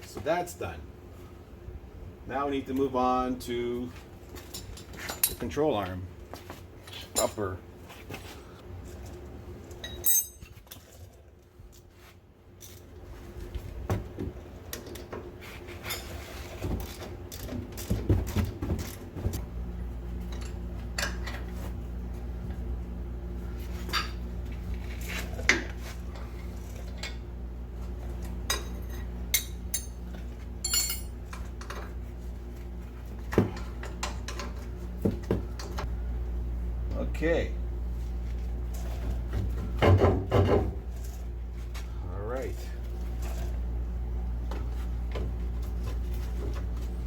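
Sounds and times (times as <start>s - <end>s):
low machine hum: 0.0s - 47.0s
metal tools clinking: 4.4s - 5.9s, 9.8s - 11.1s, 30.6s - 31.7s.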